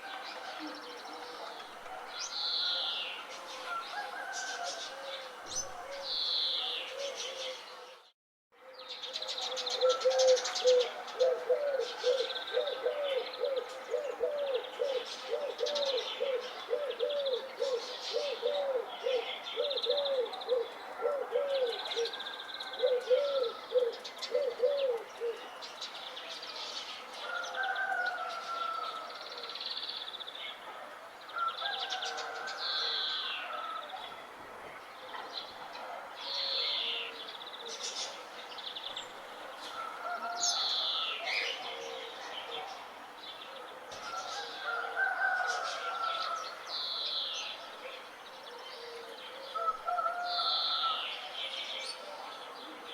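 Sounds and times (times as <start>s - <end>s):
birds chirping and singing: 8.8s - 30.6s.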